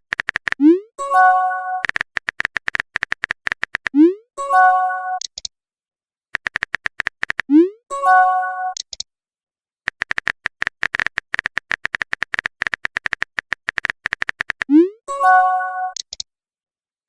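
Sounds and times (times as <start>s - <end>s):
notification chime: 7.9s - 8.8s, 15.1s - 16.0s
keyboard tap clicks: 9.9s - 14.7s.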